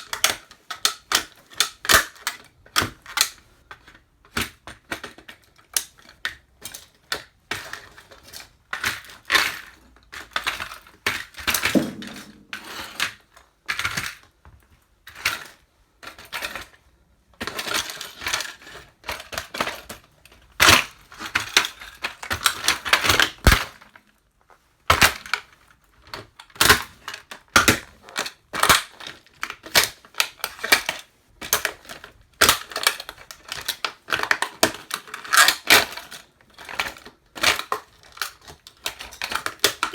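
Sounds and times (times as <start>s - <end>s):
plastic toy cracking under boots: 11.7s - 12.7s.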